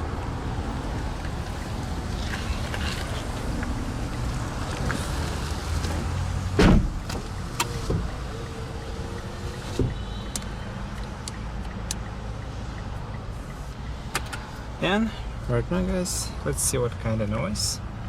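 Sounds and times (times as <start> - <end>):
loud thump: 6.6 - 7.0
sharp clicks of controls: 9.1 - 14.5.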